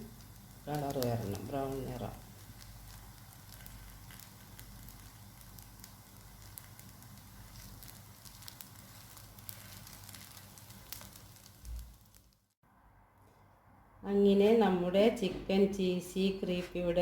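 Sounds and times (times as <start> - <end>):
crackles and pops of frying: 0.0 - 12.6
food sizzling in a pan: 0.0 - 12.6.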